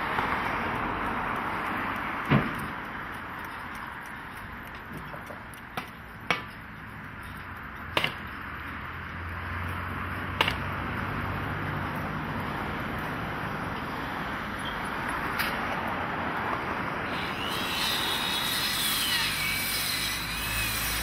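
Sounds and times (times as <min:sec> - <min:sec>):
sharp knocks on timber: 0:02.3 - 0:02.7, 0:05.0 - 0:06.5, 0:08.0 - 0:08.2, 0:10.4 - 0:10.7.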